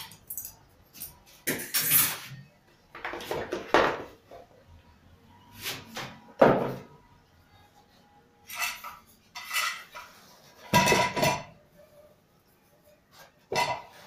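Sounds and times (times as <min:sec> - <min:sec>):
parts and tools clinking: 0:00.0 - 0:02.3.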